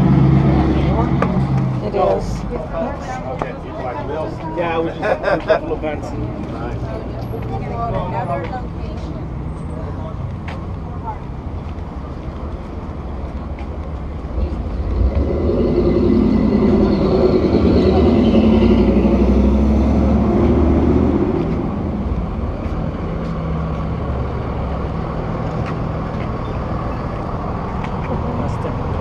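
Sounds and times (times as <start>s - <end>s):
vehicle engine passing: 0.0s - 3.1s, 14.0s - 29.0s
traffic rumble: 0.0s - 29.0s.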